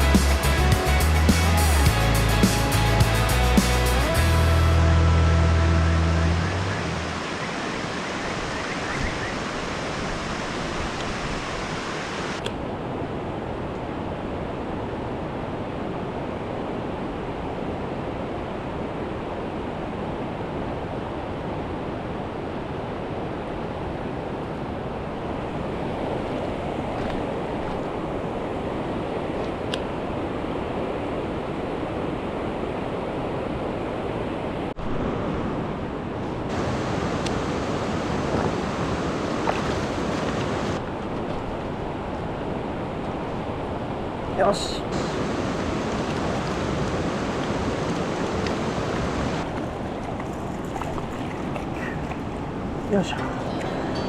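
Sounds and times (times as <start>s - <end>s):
stream rushing over rocks: 5.4s - 32.3s, 34.7s - 54.0s.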